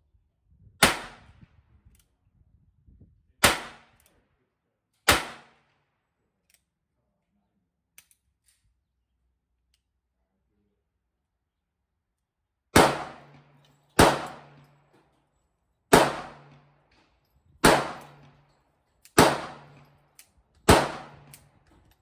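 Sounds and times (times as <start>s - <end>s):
gunshots with echo: 12.8s - 13.4s, 14.0s - 14.6s, 15.9s - 16.6s, 17.6s - 18.2s, 19.2s - 19.8s, 20.7s - 21.3s.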